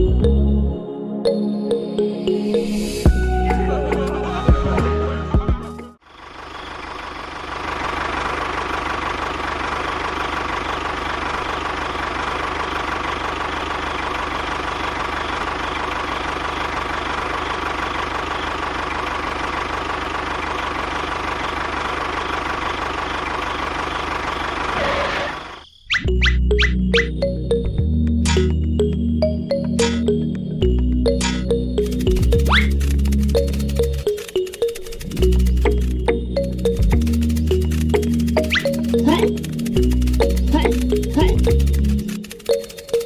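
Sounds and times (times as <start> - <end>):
small motor rattling: 6.7 - 25.5, 31.4 - 43.0.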